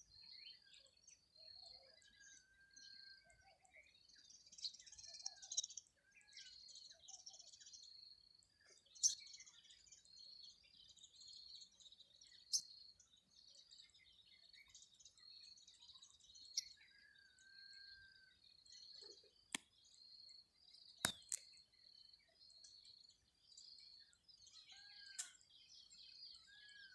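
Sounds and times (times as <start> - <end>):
sharp clicks: 21.1 - 21.4.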